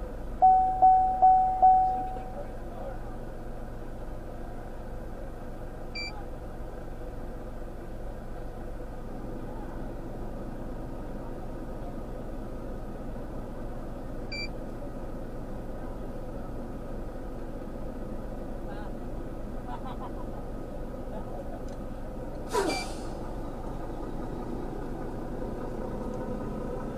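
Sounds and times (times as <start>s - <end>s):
vehicle engine idling: 0.0s - 26.9s
short high electronic beeps: 0.4s - 2.4s.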